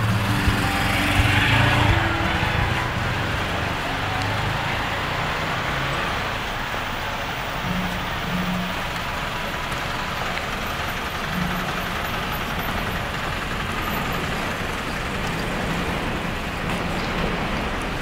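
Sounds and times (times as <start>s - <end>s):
low hum: 0.0s - 4.0s
electric train rumbling: 0.0s - 18.0s.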